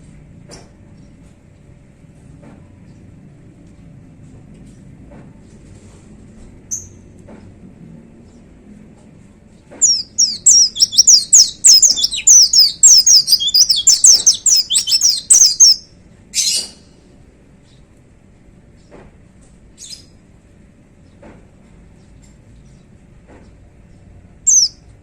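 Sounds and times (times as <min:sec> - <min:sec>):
harsh rasping bird note: 0:09.8 - 0:15.8
short bird chirp: 0:09.8 - 0:15.8
bird singing sweeping notes: 0:09.8 - 0:15.9, 0:24.5 - 0:24.8.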